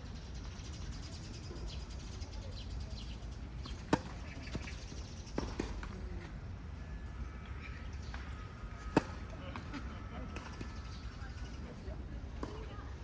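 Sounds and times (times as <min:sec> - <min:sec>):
racket hitting tennis ball: 0:03.6 - 0:04.7, 0:08.8 - 0:09.3
tennis ball bouncing on court: 0:03.6 - 0:06.2, 0:08.0 - 0:10.7.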